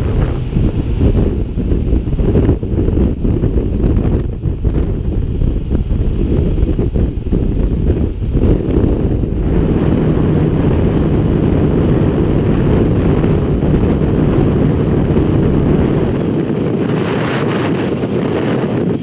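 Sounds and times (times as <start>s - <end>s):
motorcycle engine running: 0.0s - 19.0s
wind buffeting microphone: 0.0s - 19.0s.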